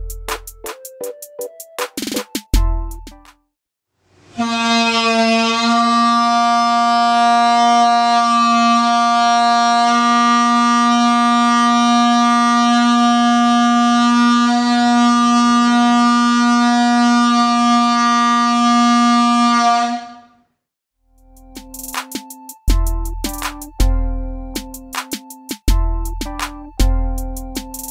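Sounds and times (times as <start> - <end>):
balloon horn steady note: 4.3 - 20.4.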